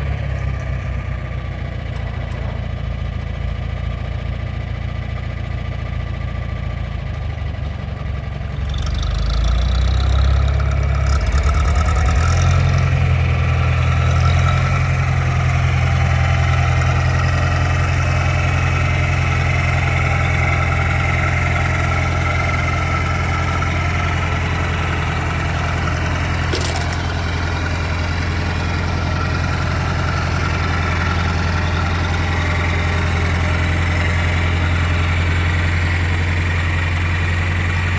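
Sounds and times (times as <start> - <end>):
tractor engine running: 0.0 - 37.9.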